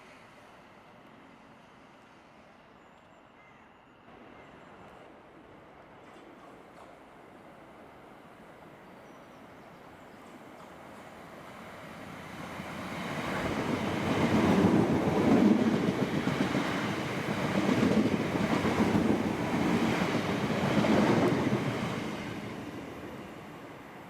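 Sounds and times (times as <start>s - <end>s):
passenger train running past: 0.0s - 24.0s.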